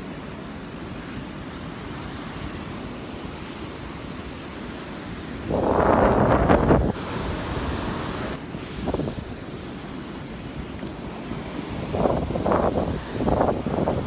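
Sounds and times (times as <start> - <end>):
surf washing on beach: 0.0 - 14.0
loud rush of noise: 5.1 - 9.4
wind on microphone: 5.2 - 9.5, 10.6 - 14.0.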